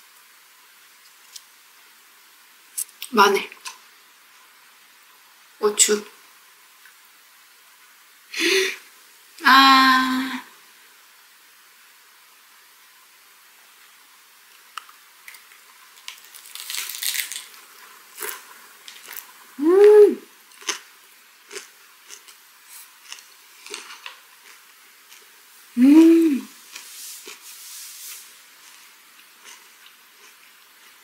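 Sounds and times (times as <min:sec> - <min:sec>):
person humming mmm: 0:09.4 - 0:10.5, 0:19.6 - 0:20.3, 0:25.8 - 0:26.6
crunchy chewing of cabbage: 0:14.6 - 0:19.6, 0:20.4 - 0:25.5, 0:26.6 - 0:31.0.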